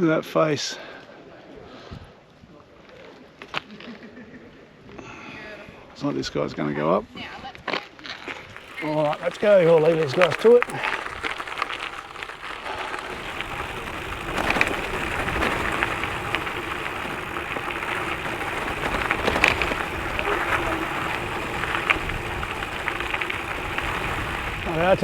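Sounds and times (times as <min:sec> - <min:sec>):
bike tyres crunching on gravel: 0:08.5 - 0:25.0.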